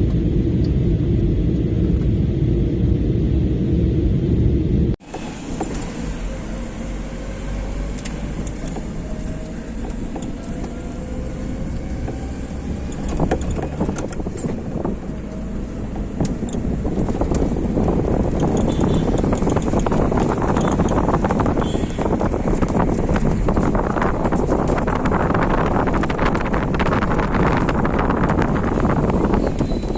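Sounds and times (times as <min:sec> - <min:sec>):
vehicle rumble: 0:00.0 - 0:29.9.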